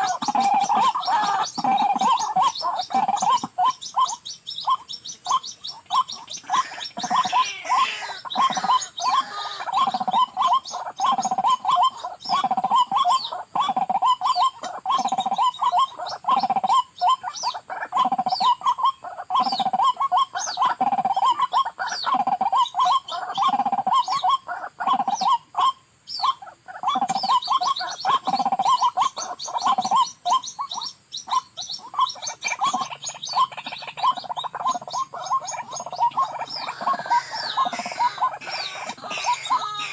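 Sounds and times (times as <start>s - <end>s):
waterhen calling: 0.0s - 39.9s
high insect whine: 26.9s - 39.9s.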